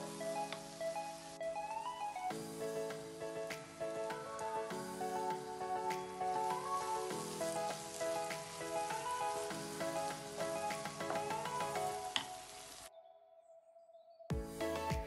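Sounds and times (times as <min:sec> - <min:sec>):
background music: 0:00.0 - 0:15.0
food sizzling in a frying pan: 0:06.2 - 0:12.9.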